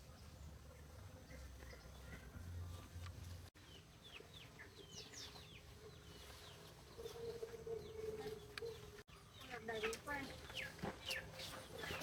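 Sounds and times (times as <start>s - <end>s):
chickens calling: 3.6s - 12.0s.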